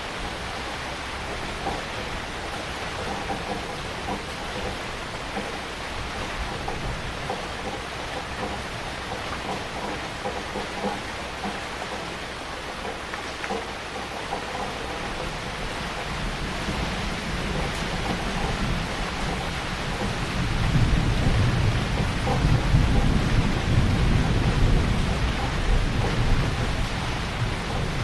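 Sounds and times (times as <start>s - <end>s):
heavy rain falling: 0.0s - 28.0s
low thunder rumble: 15.1s - 28.0s.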